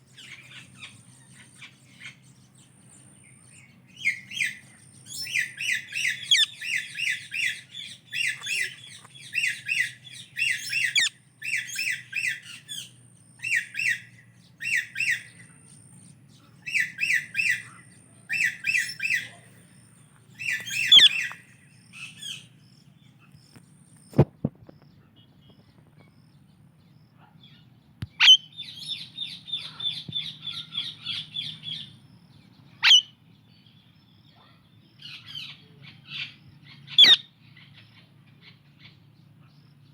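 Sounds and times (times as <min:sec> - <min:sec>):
parakeets chattering: 0:00.1 - 0:24.1
parakeet squawks: 0:04.0 - 0:12.8, 0:20.4 - 0:21.4, 0:28.2 - 0:28.4, 0:32.8 - 0:33.1, 0:36.9 - 0:37.2.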